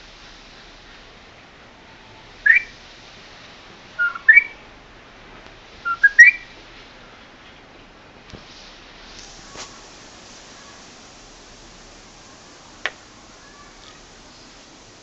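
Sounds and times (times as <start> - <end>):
bird whistling: 2.4 - 2.8, 4.0 - 4.6, 5.8 - 6.6.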